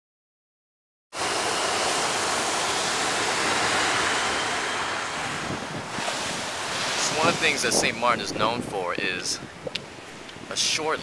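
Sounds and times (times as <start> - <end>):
beach surf rushing: 1.2 - 11.0
wind buffeting microphone: 3.3 - 11.0.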